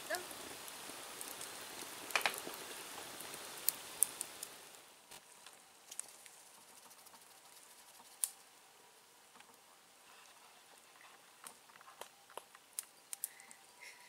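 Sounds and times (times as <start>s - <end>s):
campfire crackling and popping: 0.0s - 14.0s
faint fire hiss: 0.0s - 14.0s.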